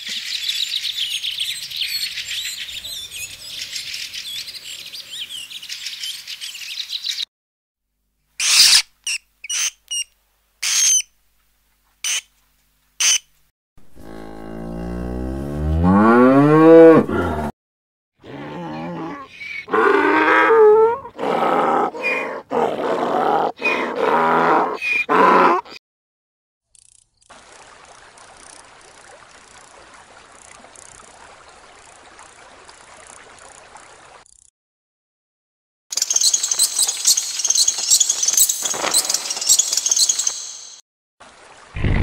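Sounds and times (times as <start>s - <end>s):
cow mooing: 13.8s - 17.5s, 18.2s - 25.6s.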